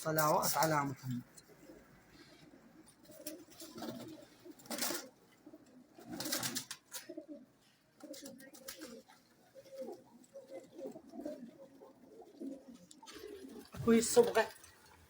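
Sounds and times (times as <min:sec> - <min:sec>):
pigeons cooing: 0:00.1 - 0:15.0.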